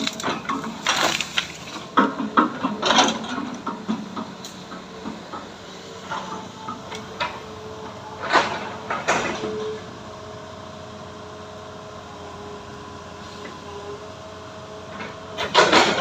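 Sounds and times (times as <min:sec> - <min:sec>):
knocks and clanks of logs: 0:00.0 - 0:07.5, 0:08.2 - 0:09.8, 0:14.9 - 0:16.0
machinery engine hum: 0:00.0 - 0:16.0.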